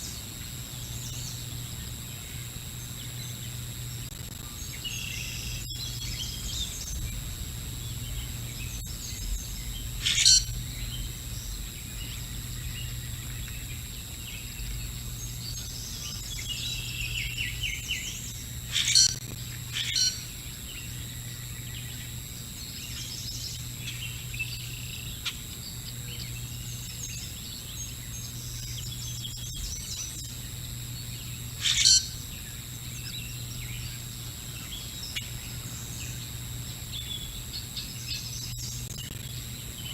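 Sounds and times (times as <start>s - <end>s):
low electrical hum: 0.0s - 39.9s
small birds chirping: 0.0s - 39.9s
sharp loud bird calls: 7.9s - 13.8s, 15.6s - 20.4s, 31.6s - 32.4s.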